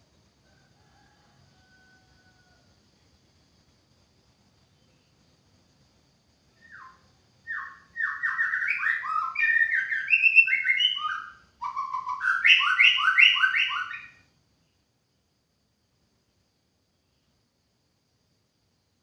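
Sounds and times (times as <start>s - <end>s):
bird singing whistled notes: 6.6s - 14.3s.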